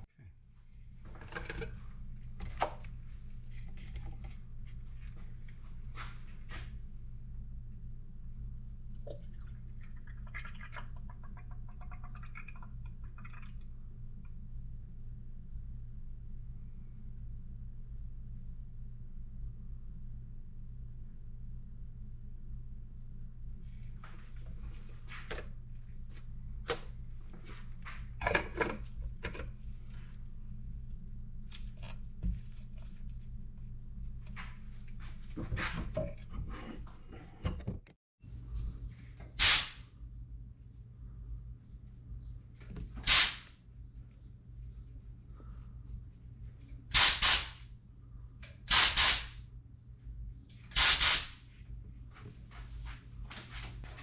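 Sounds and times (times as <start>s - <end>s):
steady low hum: 0.0s - 48.7s, 49.3s - 54.0s
knocks and clatters of handling: 1.0s - 2.9s, 28.2s - 30.0s
spray gun hissing: 39.4s - 39.8s, 43.1s - 43.4s, 46.9s - 47.6s, 48.7s - 49.3s, 50.8s - 51.4s.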